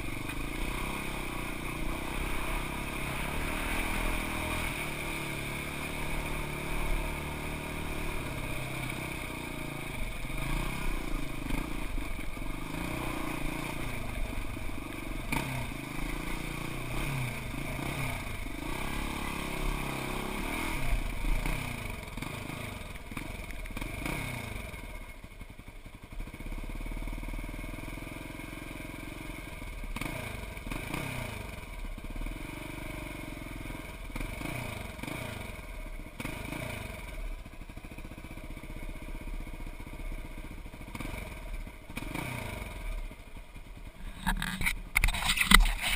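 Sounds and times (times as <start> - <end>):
off-road vehicle engine revving: 0.0 - 25.1, 26.3 - 37.7, 38.5 - 43.2, 43.8 - 45.9
clattering and scraping on rocks: 44.0 - 45.9.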